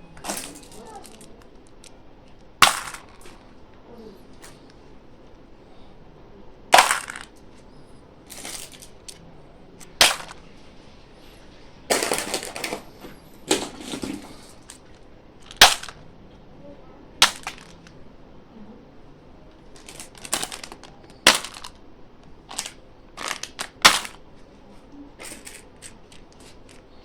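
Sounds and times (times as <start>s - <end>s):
candy packaging crinkling: 0.2s - 2.0s, 8.3s - 9.2s, 9.8s - 10.8s, 11.9s - 16.0s, 17.2s - 17.9s, 19.7s - 21.8s, 22.4s - 24.2s, 25.2s - 27.0s.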